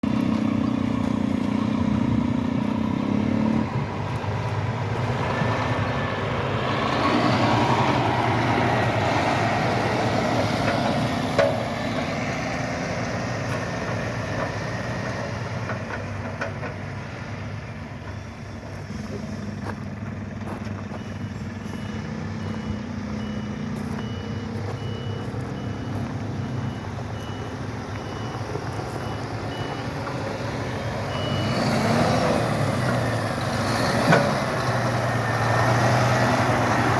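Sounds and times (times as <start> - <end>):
truck diesel engine running: 0.0 - 36.9
reversing alarm beeping: 20.7 - 32.5.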